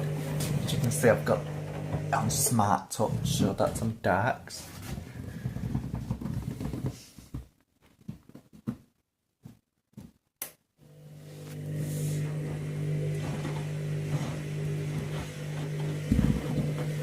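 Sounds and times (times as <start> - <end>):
washing machine motor hum: 0.0 - 4.0, 10.8 - 17.0.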